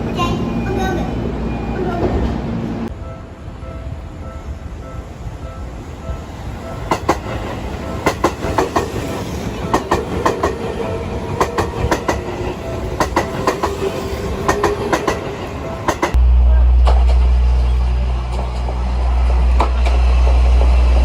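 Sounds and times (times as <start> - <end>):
train rumbling: 0.0 - 21.0
wheels clacking over rail joints: 6.8 - 16.2, 18.0 - 21.0
steady tone: 16.1 - 21.0.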